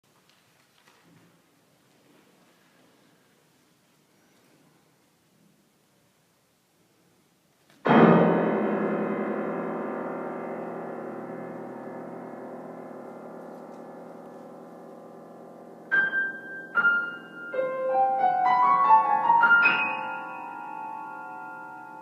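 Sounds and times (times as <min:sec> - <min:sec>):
piano chord ringing: 0:07.9 - 0:22.0.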